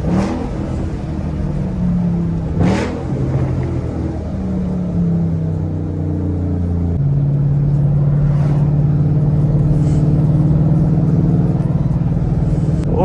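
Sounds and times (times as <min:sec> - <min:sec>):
car engine with loud exhaust: 0:00.0 - 0:13.0.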